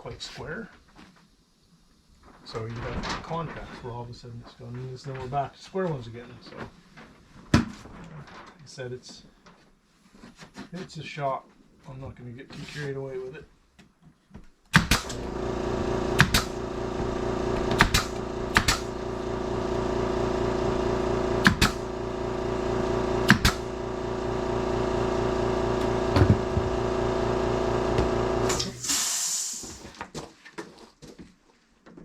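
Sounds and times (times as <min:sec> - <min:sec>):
motor running: 0:14.8 - 0:29.0.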